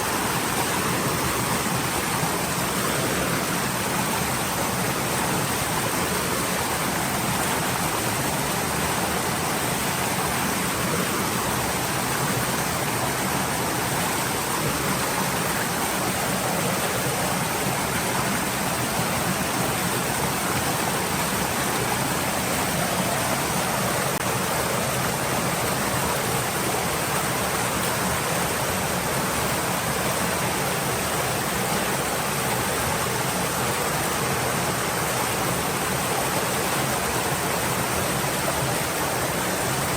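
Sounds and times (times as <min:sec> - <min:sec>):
stream flowing over stones: 0:00.0 - 0:39.9.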